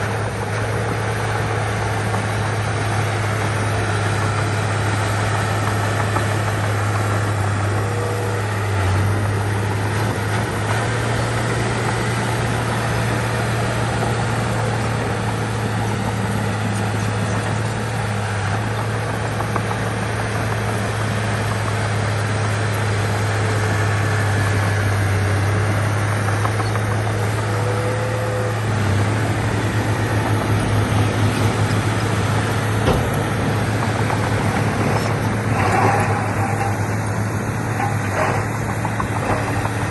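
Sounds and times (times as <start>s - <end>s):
heavy diesel machinery engine drone: 0.0s - 39.9s.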